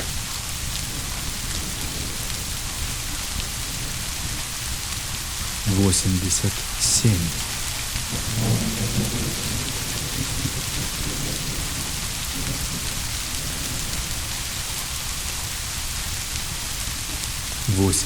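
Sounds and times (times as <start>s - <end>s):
heavy rain: 0.0s - 18.0s
distant thunder roll: 7.4s - 14.4s.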